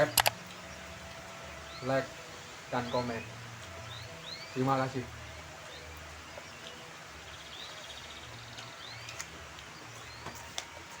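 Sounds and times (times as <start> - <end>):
bird trill: 0.0 - 10.6
birds chirping: 0.0 - 11.0
faint clicks: 0.1 - 0.6.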